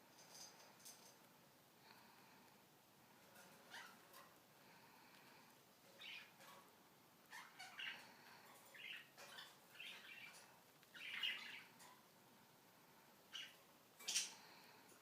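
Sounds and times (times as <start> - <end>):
cockatiel soft calls: 7.3 - 8.1.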